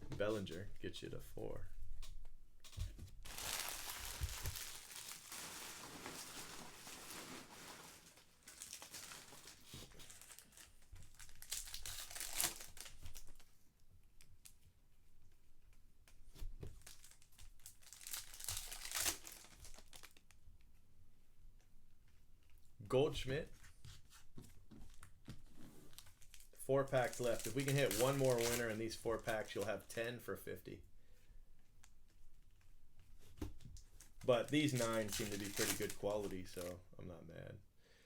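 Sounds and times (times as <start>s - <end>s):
wrappers tearing and crinkling: 3.2s - 13.4s, 16.8s - 20.3s, 25.9s - 29.7s, 34.0s - 36.7s
cards being handled: 33.2s - 36.7s.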